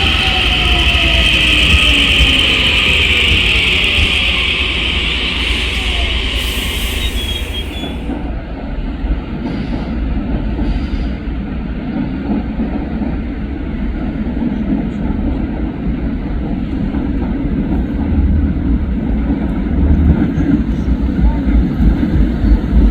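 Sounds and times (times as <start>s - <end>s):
high hiss: 0.0s - 8.2s
train rumbling: 0.0s - 22.9s.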